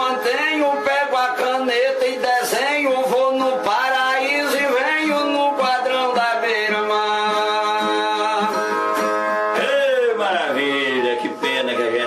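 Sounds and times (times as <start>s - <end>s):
viola music: 6.8s - 12.0s.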